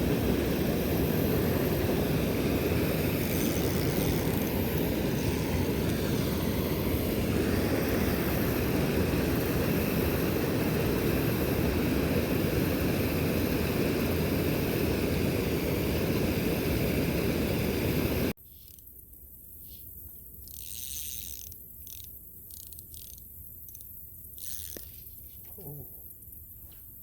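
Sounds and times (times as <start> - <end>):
loud steady rushing noise: 0.0 - 18.3.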